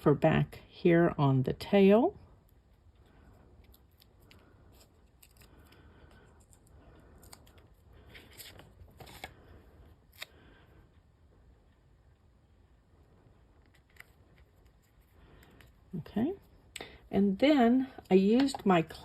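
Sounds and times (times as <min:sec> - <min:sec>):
foam pieces peeled and rustling: 0:03.7 - 0:05.7.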